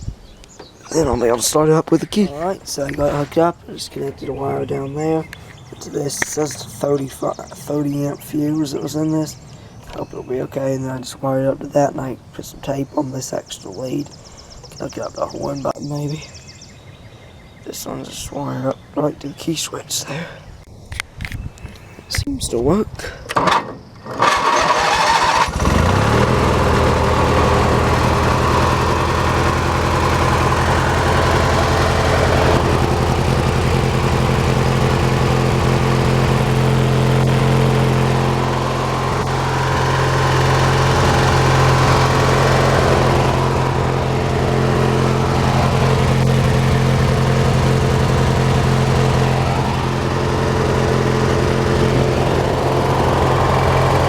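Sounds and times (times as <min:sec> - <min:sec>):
lawn tractor engine running: 0:00.6 - 0:08.3, 0:23.4 - 0:54.0
starter cranking: 0:23.3 - 0:54.0.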